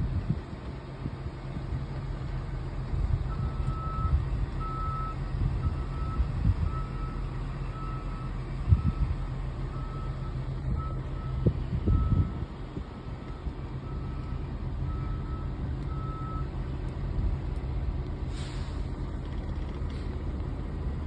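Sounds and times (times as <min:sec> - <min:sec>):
truck engine rumbling: 0:00.0 - 0:21.0
reversing alarm beeping: 0:03.3 - 0:16.6.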